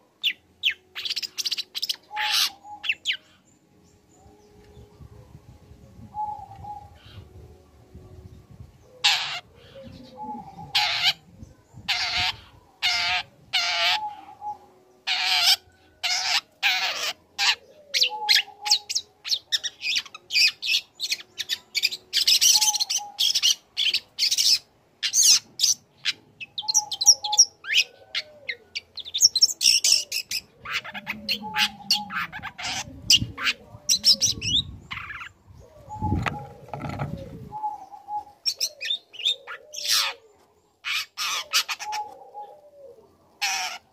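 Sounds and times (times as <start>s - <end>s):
bird harsh rasping calls: 43.4s - 43.9s.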